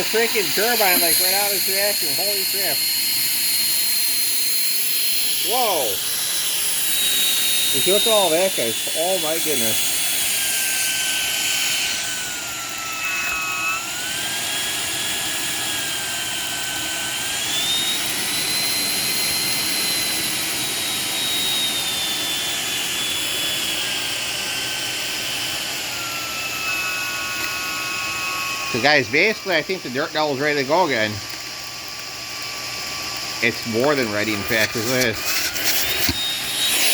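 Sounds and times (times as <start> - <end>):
stick vacuum motor whine: 0.0 - 36.9.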